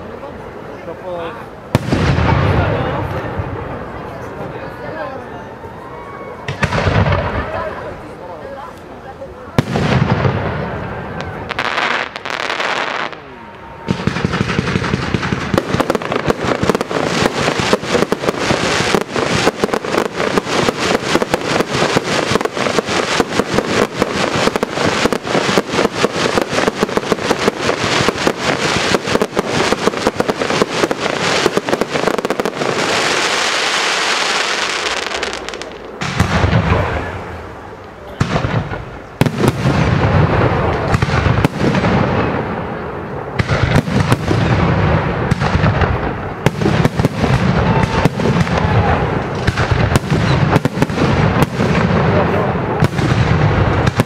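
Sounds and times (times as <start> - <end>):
fireworks bangs and booms: 0.8 - 5.2, 6.4 - 54.0
fireworks crackling pops: 1.7 - 4.4, 6.4 - 7.7, 9.5 - 54.0
fireworks hiss: 9.6 - 37.4.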